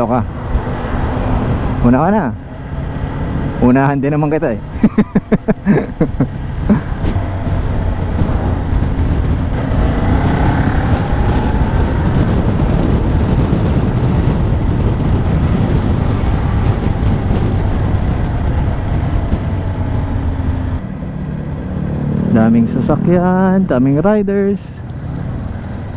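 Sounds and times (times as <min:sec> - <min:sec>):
wind rushing on microphone: 0:00.0 - 0:25.9
motorcycle engine running: 0:06.8 - 0:22.8.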